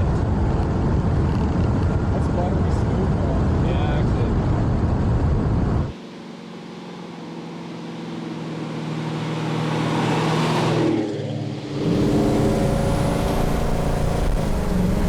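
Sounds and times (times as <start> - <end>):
road noise: 0.0 - 15.0
car engine running: 3.2 - 15.0.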